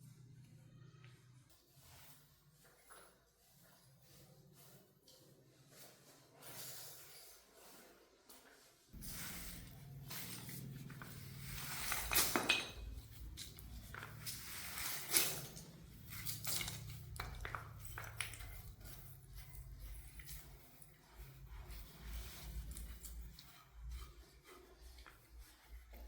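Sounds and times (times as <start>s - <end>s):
hand tools scraping tile and concrete: 1.5s - 8.4s, 9.0s - 26.0s.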